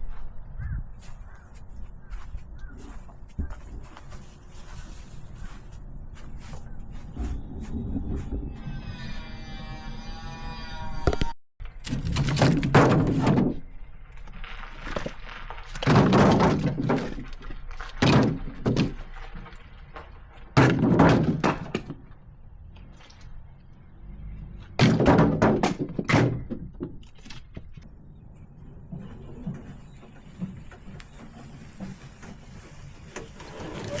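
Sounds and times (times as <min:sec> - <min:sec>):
logs knocking and thudding: 0:11.6 - 0:13.7, 0:14.6 - 0:22.2, 0:24.6 - 0:28.0.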